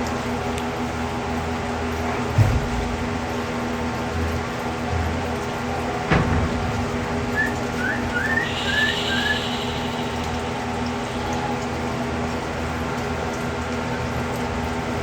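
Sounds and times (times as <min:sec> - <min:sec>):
steady background hum: 0:01.9 - 0:14.1
bird whistled chirps: 0:07.3 - 0:11.6.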